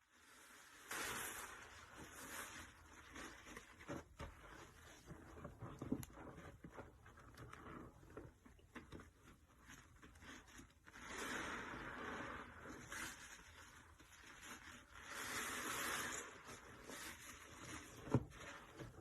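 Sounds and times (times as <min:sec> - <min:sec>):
sponge squelching: 0:00.2 - 0:19.0
hissing rush of foam: 0:00.5 - 0:02.5.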